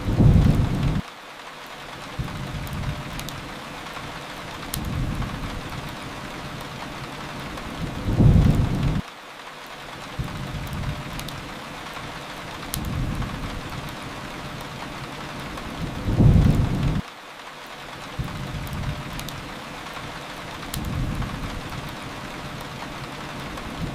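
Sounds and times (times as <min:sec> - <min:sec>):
thunder rumbling: 0:00.0 - 0:01.0, 0:04.8 - 0:06.6, 0:07.3 - 0:09.0, 0:12.8 - 0:17.0, 0:20.7 - 0:23.9
rain falling: 0:00.0 - 0:23.9.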